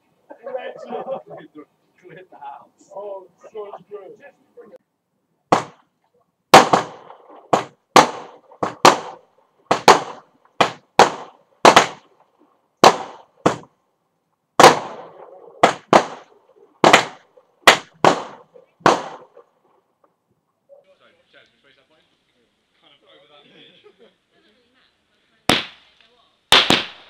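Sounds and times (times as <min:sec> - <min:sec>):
fireworks bangs: 0:05.5 - 0:05.8, 0:06.5 - 0:13.7, 0:14.6 - 0:19.5, 0:26.5 - 0:27.0.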